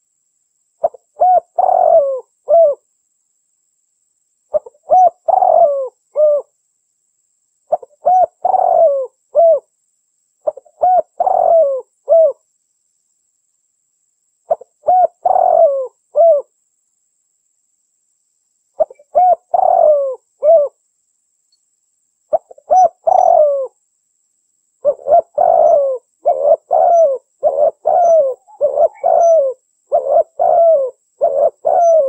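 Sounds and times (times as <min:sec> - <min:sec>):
dove cooing: 0:00.8 - 0:02.8, 0:04.5 - 0:06.5, 0:07.7 - 0:09.7, 0:10.4 - 0:12.4, 0:14.5 - 0:16.5, 0:18.8 - 0:20.8, 0:22.3 - 0:23.8, 0:24.8 - 0:32.0.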